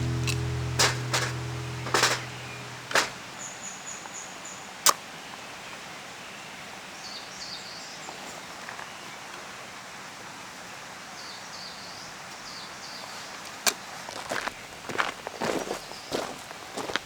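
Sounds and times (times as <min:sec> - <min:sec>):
sharp click: 0:00.0 - 0:03.2.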